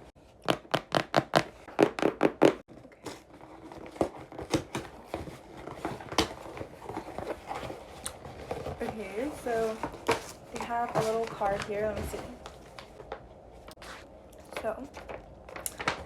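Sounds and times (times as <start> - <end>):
packaging crinkling and rustling: 2.7 - 16.0
packaging tearing: 14.9 - 16.0.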